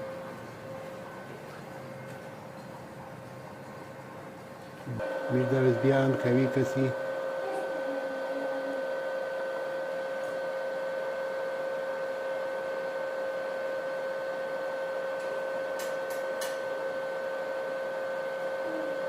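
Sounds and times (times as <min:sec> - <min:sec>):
electrical whine: 0:04.8 - 0:19.0.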